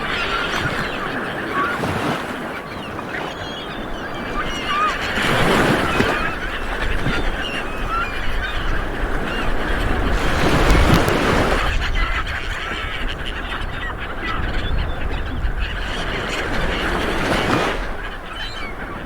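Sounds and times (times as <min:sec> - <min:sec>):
waves washing onto beach: 0:00.0 - 0:14.4, 0:15.5 - 0:19.0
birds calling: 0:00.0 - 0:19.0
wind rumble on microphone: 0:03.9 - 0:19.0.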